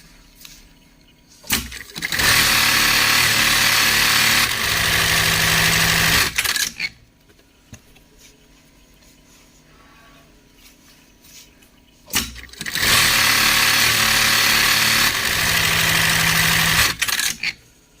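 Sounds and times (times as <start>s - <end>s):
industrial sewing machine stitching: 1.5s - 6.9s, 12.1s - 17.6s.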